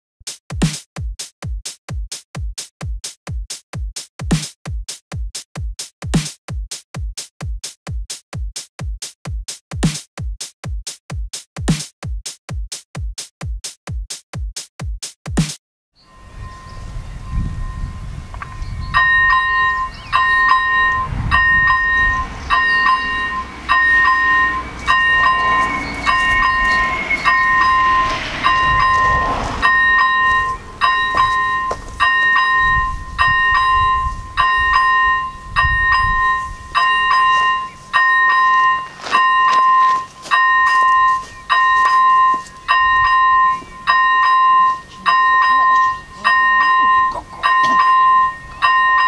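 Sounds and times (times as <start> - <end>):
level crossing warning bell ringing: 16.0 - 49.0
wind on microphone: 16.1 - 38.7, 40.9 - 44.5
low rumble: 16.1 - 39.8.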